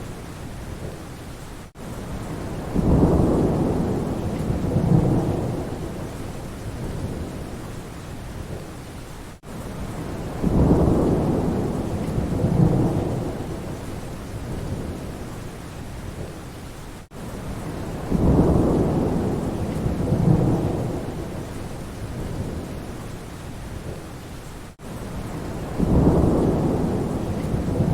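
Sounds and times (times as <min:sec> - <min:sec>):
steady rain: 0:00.0 - 0:27.9
thunder rumbling: 0:02.2 - 0:07.6, 0:09.8 - 0:15.3, 0:17.5 - 0:22.9, 0:25.2 - 0:27.9.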